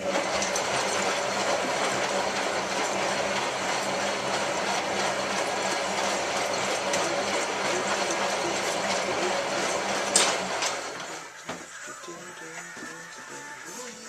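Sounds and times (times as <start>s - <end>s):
washing machine running: 0.0s - 12.0s.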